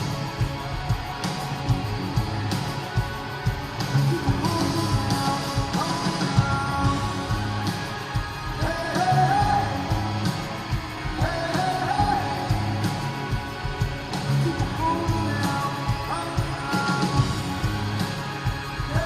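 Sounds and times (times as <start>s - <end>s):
live rock band: 0.0s - 19.0s
person singing: 4.0s - 13.5s, 14.1s - 19.0s.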